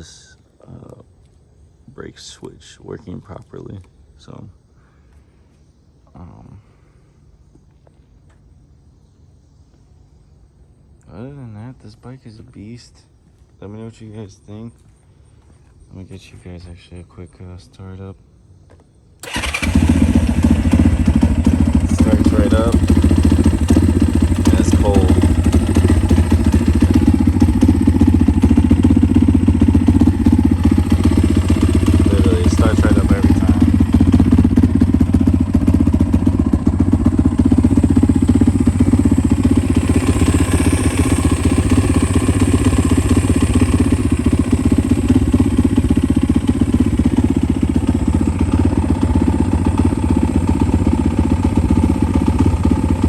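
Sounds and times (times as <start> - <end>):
dirt bike engine idling: 19.2 - 53.0.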